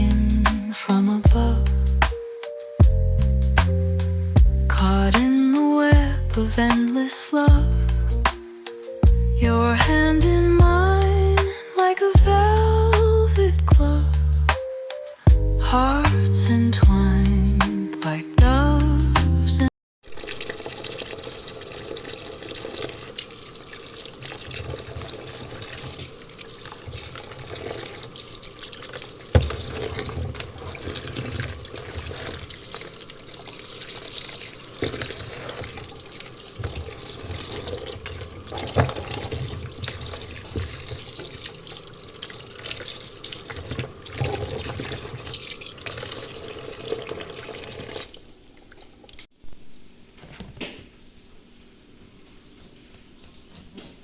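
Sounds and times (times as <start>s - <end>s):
tap water running into sink: 20.1s - 49.3s
knocks and clatters in sink: 29.3s - 32.4s.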